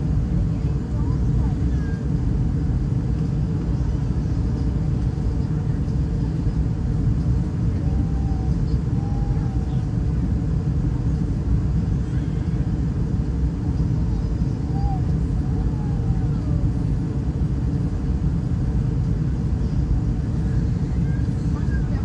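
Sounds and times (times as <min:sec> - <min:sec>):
jet engines droning in cabin: 0:00.0 - 0:22.0.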